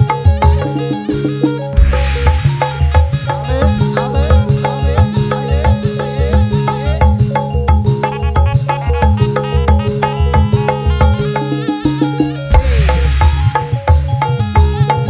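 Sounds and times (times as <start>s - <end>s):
melody of short pitched notes: 0.0s - 15.0s
low drum thumps: 1.8s - 5.7s, 12.5s - 14.4s.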